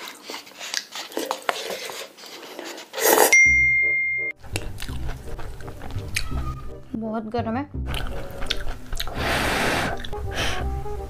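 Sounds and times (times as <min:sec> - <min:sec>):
slurping noodles: 0:00.0 - 0:03.4, 0:07.9 - 0:10.7
bright bell-like tone: 0:03.3 - 0:04.4.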